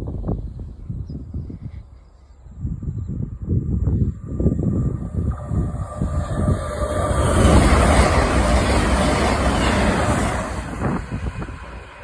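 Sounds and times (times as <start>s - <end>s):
train passing at speed: 2.4s - 12.0s.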